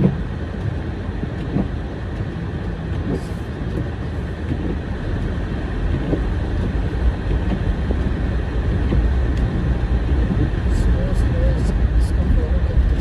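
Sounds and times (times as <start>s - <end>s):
car engine rumble: 0.0s - 13.0s
tyres on road: 0.0s - 13.0s.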